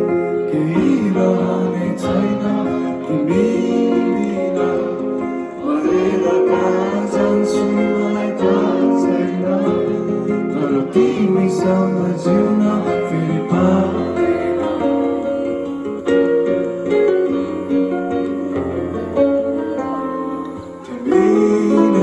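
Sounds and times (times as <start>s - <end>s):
person singing: 0.0s - 22.0s
live band playing: 12.0s - 22.0s.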